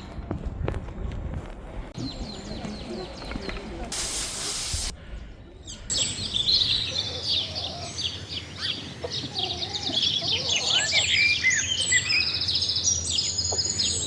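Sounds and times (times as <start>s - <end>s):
songbirds chirping: 2.0s - 14.0s.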